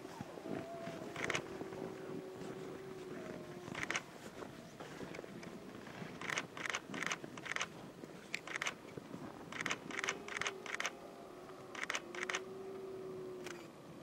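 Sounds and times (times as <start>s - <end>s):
camera shutter clicking: 6.2s - 7.7s, 9.5s - 10.9s, 11.8s - 12.4s.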